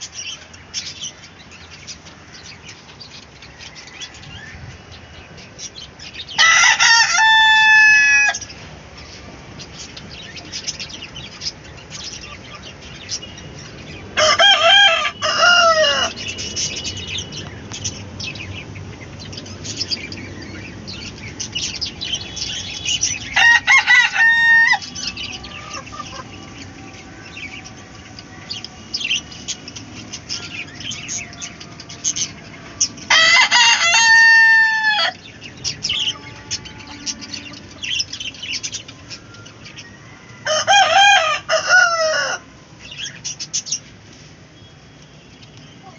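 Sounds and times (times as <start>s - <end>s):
rooster crowing: 6.3s - 8.5s, 14.2s - 16.4s, 23.0s - 27.9s, 30.5s - 35.3s, 39.1s - 42.6s
hens clucking: 23.7s - 28.7s.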